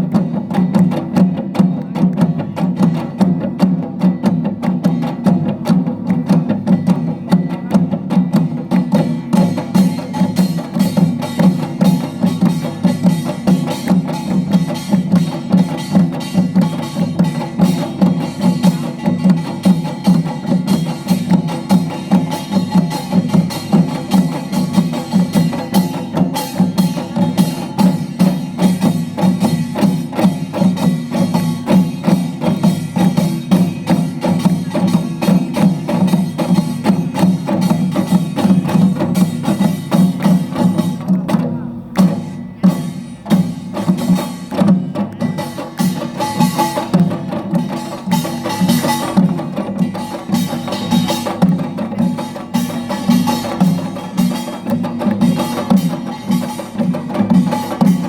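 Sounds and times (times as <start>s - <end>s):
percussion ensemble playing: 0.0s - 58.0s.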